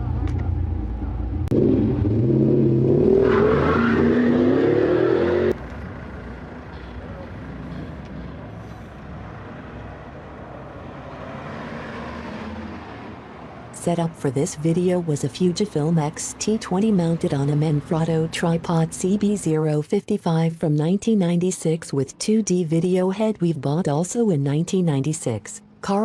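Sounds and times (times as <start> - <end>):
car engine accelerating: 0.0 - 19.5
distant engine: 0.0 - 19.8
outdoor noise: 0.0 - 26.0.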